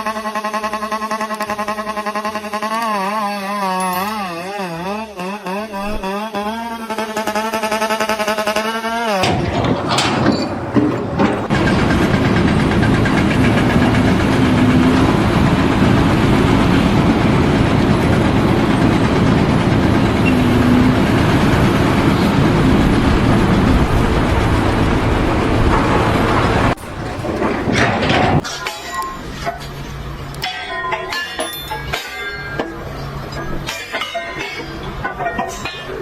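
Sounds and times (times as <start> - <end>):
heavy vehicle engine under load: 9.2 - 28.6.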